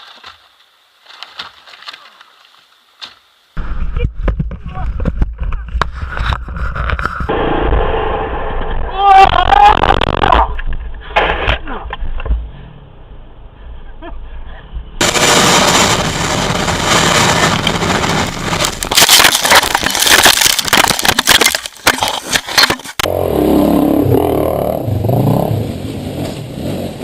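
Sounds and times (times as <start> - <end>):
sharp knocks and scrapes: 4.2 - 7.3, 18.6 - 23.1
heavy rushing noise: 7.2 - 9.1
dirt bike engine revving: 23.0 - 27.0.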